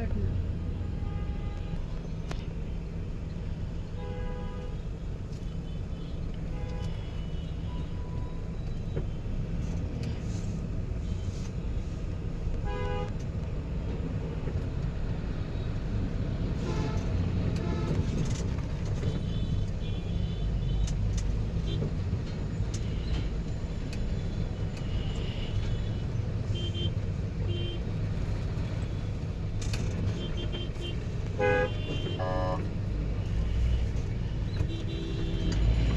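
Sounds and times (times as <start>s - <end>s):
car engine and road rumble: 0.0s - 35.9s
car horn toots: 16.6s - 18.3s, 26.6s - 27.8s, 30.1s - 32.7s, 34.5s - 35.8s.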